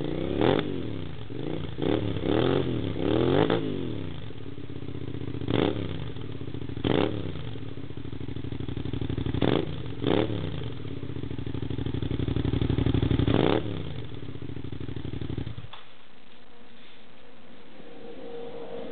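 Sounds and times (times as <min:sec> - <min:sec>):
motorcycle engine idling and revving: 0:00.0 - 0:15.7.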